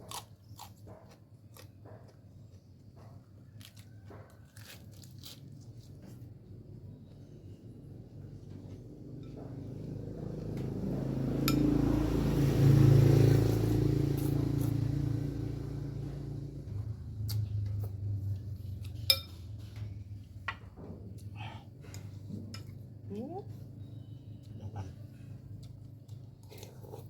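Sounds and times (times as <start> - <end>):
passing vehicle engine: 8.0 - 20.4
spoon clinking against bowl: 19.0 - 19.4.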